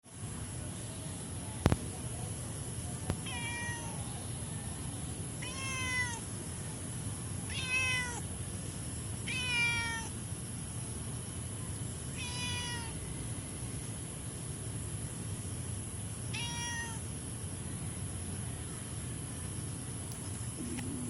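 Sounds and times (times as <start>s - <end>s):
cat meowing: 3.2s - 4.0s, 5.4s - 6.2s, 7.5s - 8.2s, 9.3s - 10.1s, 12.1s - 13.0s, 16.3s - 17.0s.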